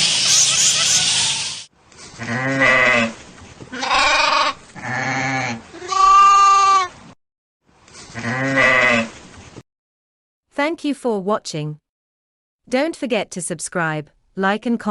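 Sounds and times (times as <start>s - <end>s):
animal bleating: 2.2s - 7.0s, 8.2s - 9.2s.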